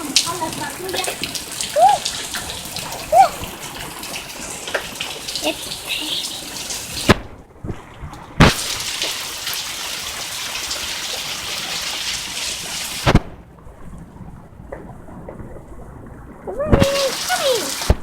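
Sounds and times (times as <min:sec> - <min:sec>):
rain hissing: 0:00.0 - 0:07.2, 0:08.4 - 0:13.2, 0:16.6 - 0:18.0.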